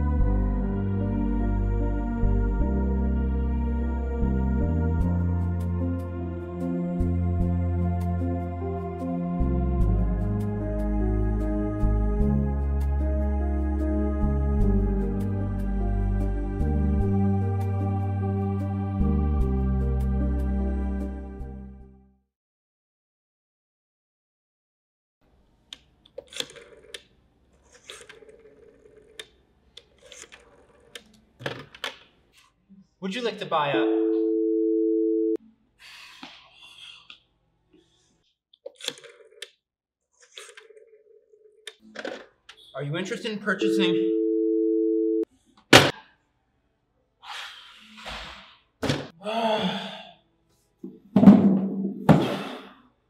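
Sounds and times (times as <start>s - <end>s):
man sighing and groaning: 49.2s - 50.2s.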